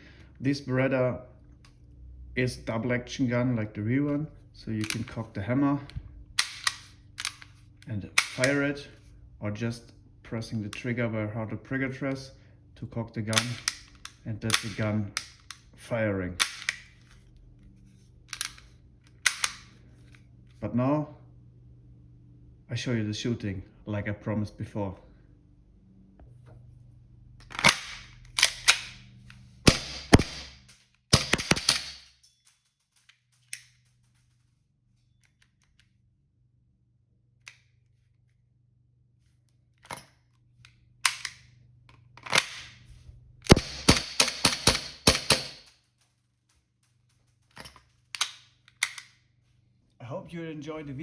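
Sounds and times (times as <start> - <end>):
airsoft pistol gas shots: 29.7 - 30.6, 31.2 - 32.0, 43.5 - 45.6.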